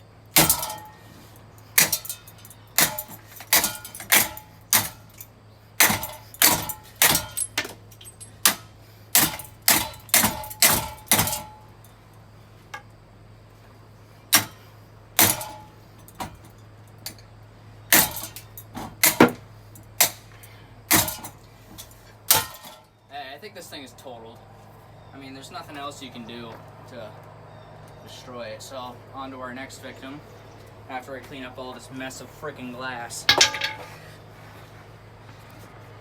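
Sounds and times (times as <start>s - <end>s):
metal parts and glass clattering: 0.4s - 1.0s, 1.8s - 8.6s, 9.2s - 11.6s, 17.9s - 19.4s, 21.0s - 22.9s, 33.3s - 34.0s
sharp smashing impacts: 33.3s - 34.0s.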